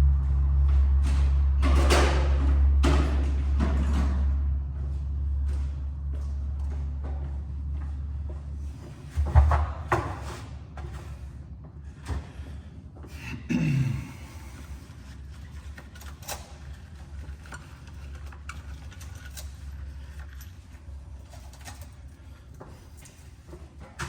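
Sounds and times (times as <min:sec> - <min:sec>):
low hum: 0:00.0 - 0:09.9.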